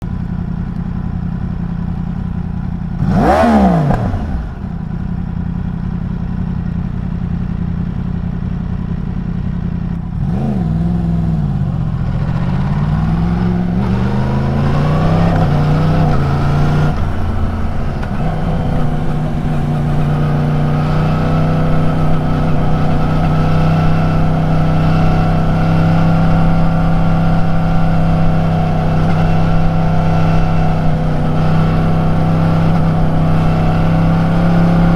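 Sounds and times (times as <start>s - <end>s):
motorcycle engine revving: 2.4s - 5.7s, 9.7s - 34.9s.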